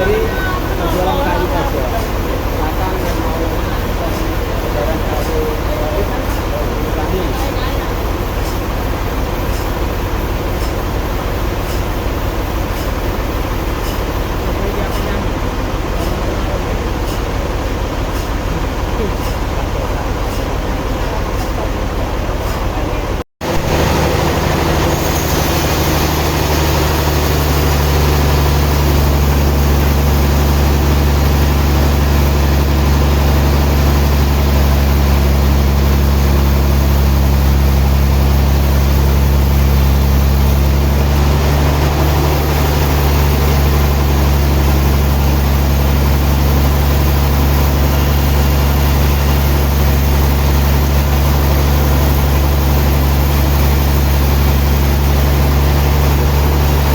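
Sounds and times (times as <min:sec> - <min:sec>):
sawmill machinery droning: 0:00.0 - 0:56.9.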